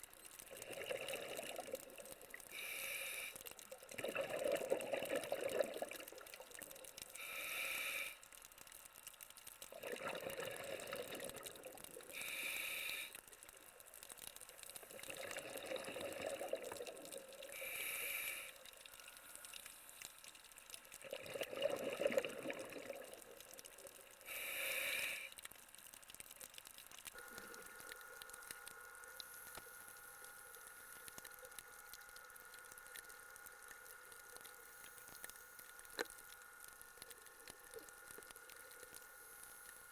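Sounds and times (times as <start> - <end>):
faint steady hum: 0.0 - 39.9
gurgle of exhaled bubbles: 0.4 - 2.5, 3.7 - 7.0, 9.7 - 12.2, 14.8 - 17.7, 21.0 - 24.0
regulator inhale hiss: 2.4 - 3.6, 7.0 - 8.4, 12.0 - 13.4, 17.4 - 20.0, 24.2 - 25.4.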